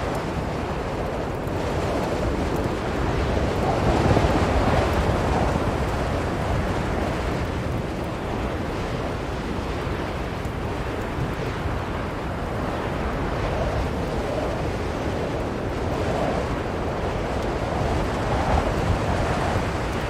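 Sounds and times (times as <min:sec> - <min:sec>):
strong blizzard wind: 0:00.0 - 0:20.0.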